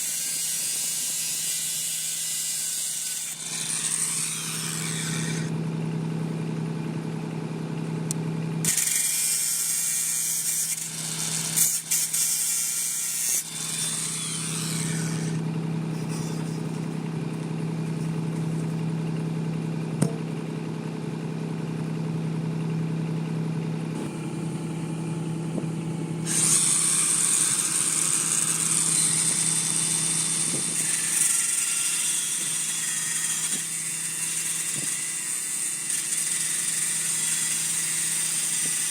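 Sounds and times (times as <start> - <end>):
steady low hum: 3.5 - 29.7.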